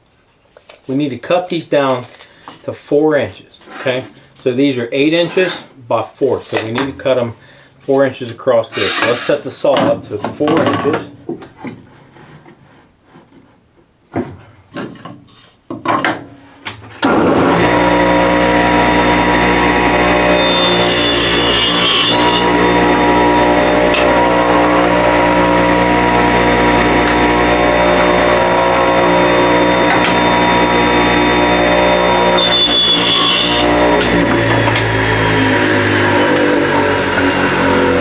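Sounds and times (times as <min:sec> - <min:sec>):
saw blade cutting wood: 0:08.7 - 0:09.5, 0:17.1 - 0:38.0
electric saw running: 0:17.0 - 0:38.0.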